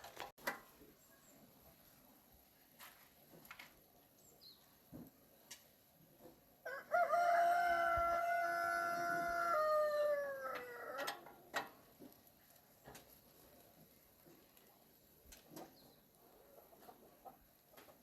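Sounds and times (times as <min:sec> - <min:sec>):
rooster crowing: 0:06.6 - 0:11.2.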